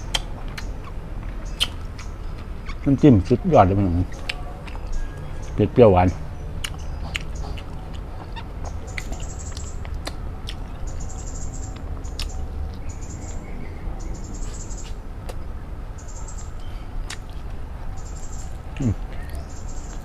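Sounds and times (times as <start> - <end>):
lip-smacking and mouth clicks: 0.0 - 2.9, 6.6 - 11.0, 11.7 - 12.9, 17.0 - 17.6
bird chirping in trills: 0.0 - 9.9, 10.8 - 15.0, 15.9 - 17.0, 17.9 - 20.0.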